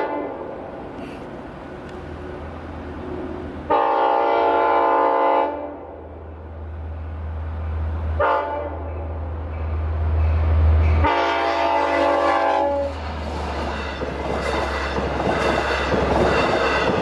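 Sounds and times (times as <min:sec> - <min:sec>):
train horn blasts: 0:00.0 - 0:00.6, 0:03.7 - 0:05.9, 0:08.2 - 0:09.0, 0:10.9 - 0:13.0
train rumbling: 0:00.0 - 0:17.0.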